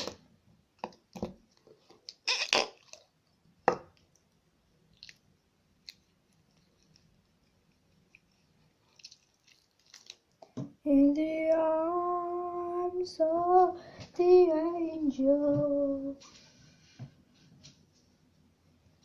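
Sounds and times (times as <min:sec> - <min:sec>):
slime squelching: 0:01.0 - 0:10.6.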